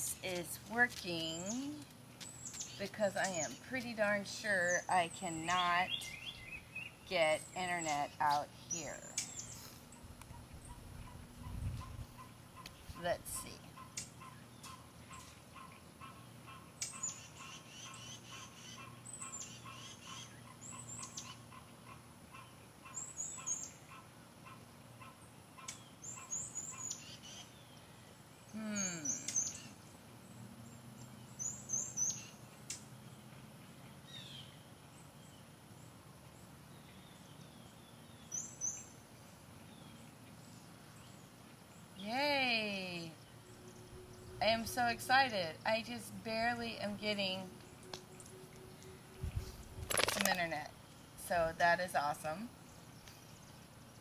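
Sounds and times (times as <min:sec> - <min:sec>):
birds chirping: 0:00.0 - 0:54.0
faint steady hum: 0:00.0 - 0:54.0.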